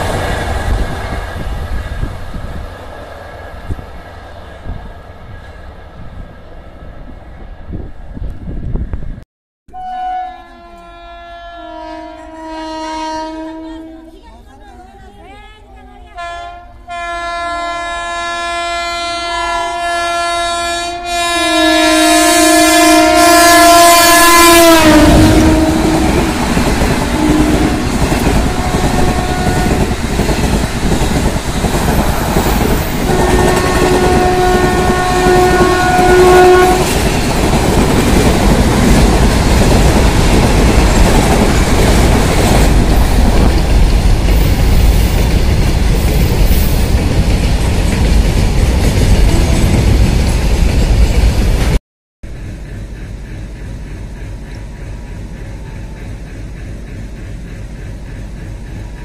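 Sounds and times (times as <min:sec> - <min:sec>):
train coaches rushing by: 0:00.0 - 0:09.2, 0:21.0 - 0:59.0
locomotive horn: 0:09.7 - 0:14.2, 0:16.2 - 0:30.0, 0:33.1 - 0:37.0, 0:49.2 - 0:49.8.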